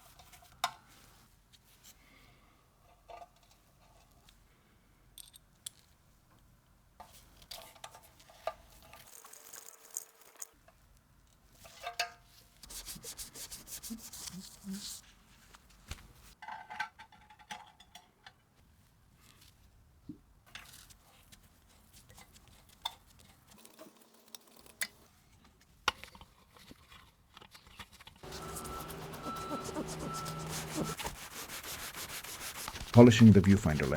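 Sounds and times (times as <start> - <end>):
rubbing and scrubbing camera parts: 12.6 - 15.2, 27.6 - 33.9.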